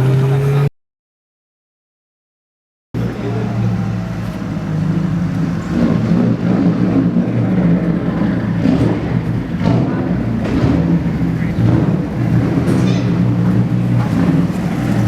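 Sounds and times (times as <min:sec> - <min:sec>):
car engine idling: 0:03.0 - 0:15.0.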